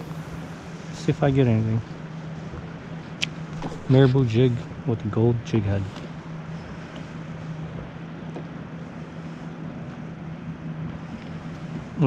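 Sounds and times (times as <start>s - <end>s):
wind on microphone: 0.0s - 4.9s
low steady hum: 0.0s - 12.0s.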